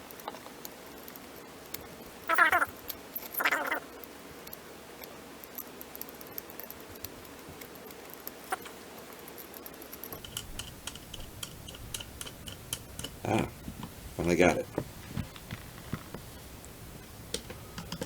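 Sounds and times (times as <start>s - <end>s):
screwdriver clicks on metal parts: 9.2s - 13.3s.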